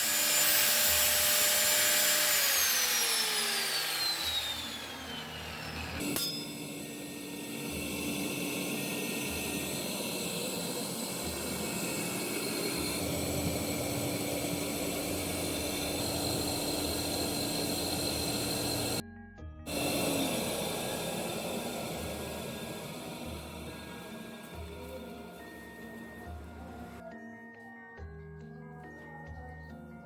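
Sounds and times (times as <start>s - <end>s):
steady hum with held tone: 4.0s - 19.0s, 19.7s - 27.0s
background music: 7.1s - 30.0s.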